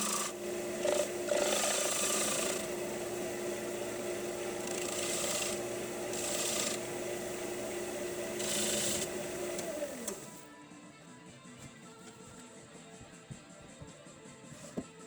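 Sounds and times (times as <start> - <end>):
tool scraping spinning wood: 0.0 - 10.4
wood lathe humming: 0.0 - 10.4.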